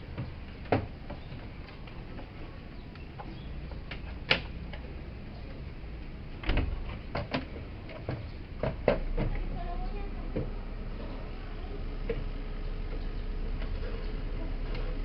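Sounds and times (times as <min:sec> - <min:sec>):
sharp clicks and knocks: 0:02.9 - 0:05.0, 0:06.4 - 0:09.4.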